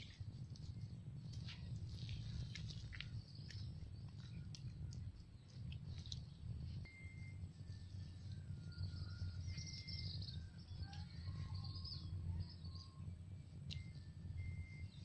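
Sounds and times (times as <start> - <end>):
low steady rumble: 0.0 - 15.0
birds whistling and chirping: 6.8 - 15.0.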